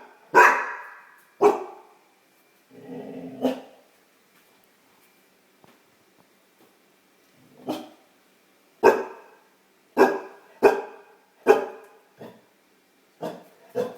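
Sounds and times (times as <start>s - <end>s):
puppy barking: 0.0s - 1.9s, 7.6s - 8.0s, 8.8s - 9.4s, 10.0s - 12.4s, 13.2s - 13.9s.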